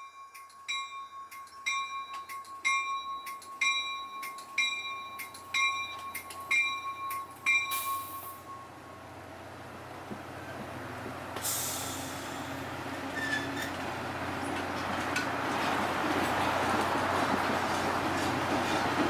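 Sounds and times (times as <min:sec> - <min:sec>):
train bell ringing: 0:00.0 - 0:09.3
air hiss: 0:11.4 - 0:12.7.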